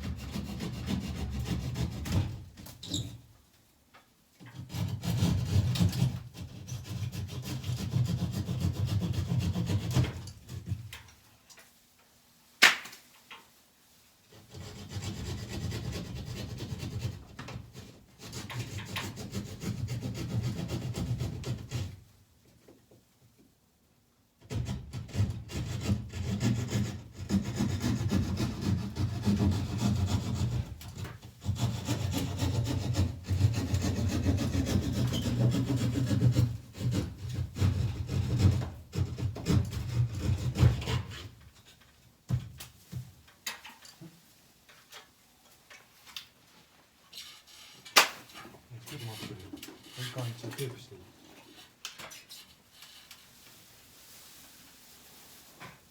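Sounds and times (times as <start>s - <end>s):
hand saw cutting board: 0.0s - 3.1s, 4.4s - 10.9s, 14.3s - 22.0s, 24.4s - 41.4s, 48.0s - 50.7s.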